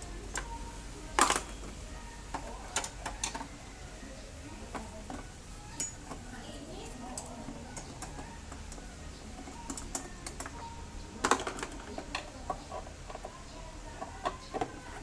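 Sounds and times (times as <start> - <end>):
hand tools clicking and tapping: 4.6 - 13.4.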